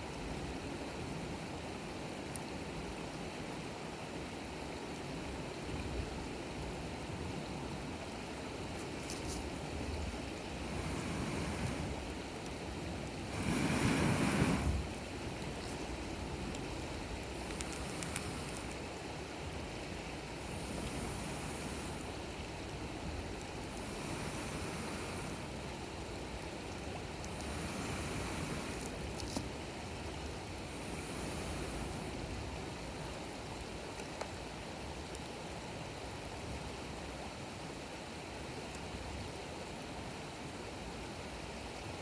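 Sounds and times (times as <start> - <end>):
campfire crackling: 4.9 - 35.4
wind noise on microphone: 8.4 - 33.3.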